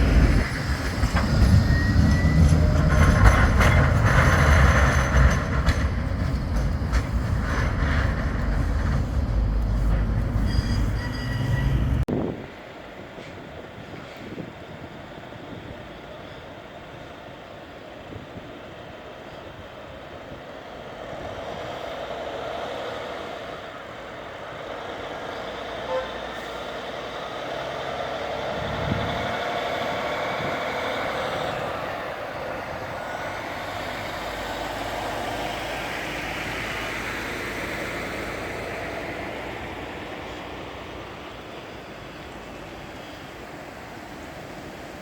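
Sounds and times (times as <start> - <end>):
tram running past: 0.0 - 45.0
short high beep: 10.4 - 12.0.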